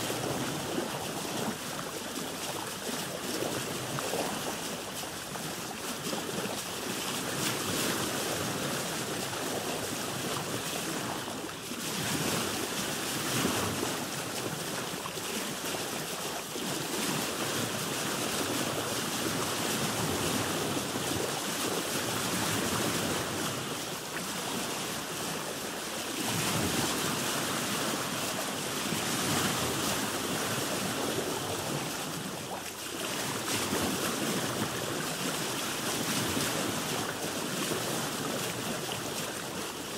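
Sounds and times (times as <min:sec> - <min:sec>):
waves washing around a boat: 0:00.0 - 0:39.9.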